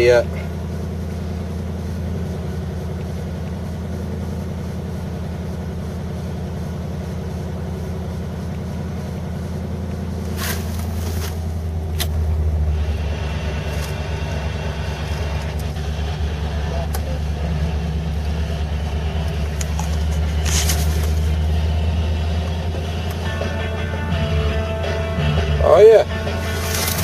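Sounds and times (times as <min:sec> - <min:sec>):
car engine idling: 0:00.0 - 0:27.0
short hiss: 0:10.2 - 0:11.5.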